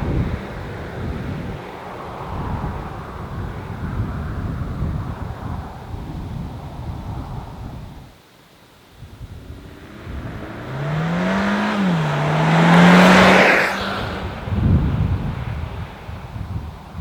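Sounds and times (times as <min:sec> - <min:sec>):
tyre and wind noise: 0:00.0 - 0:08.2, 0:08.9 - 0:17.0
car engine accelerating hard: 0:09.3 - 0:16.1.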